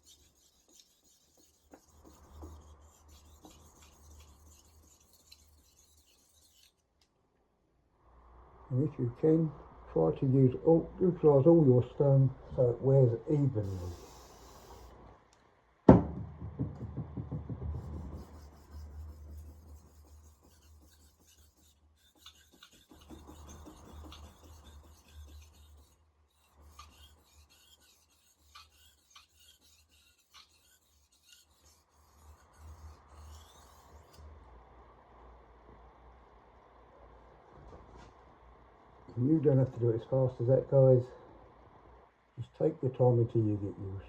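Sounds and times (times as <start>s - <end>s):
knife scraping on whetstone: 0.0s - 6.8s, 17.8s - 34.2s
sharp knock: 15.9s - 18.0s.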